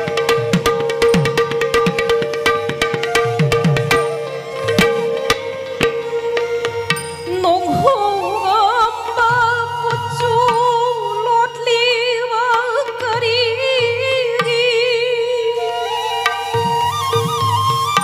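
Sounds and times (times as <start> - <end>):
ornamented melody: 0.0 - 10.0.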